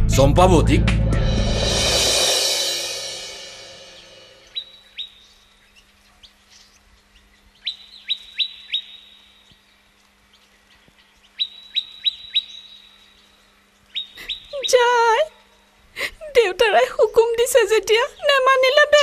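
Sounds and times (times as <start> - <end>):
bird chirping: 4.0 - 15.2.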